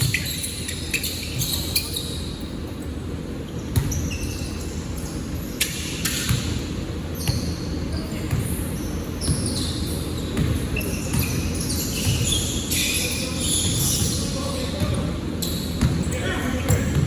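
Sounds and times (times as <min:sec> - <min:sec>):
basketball bouncing on court: 0:03.7 - 0:04.2, 0:08.2 - 0:12.5, 0:13.5 - 0:17.0.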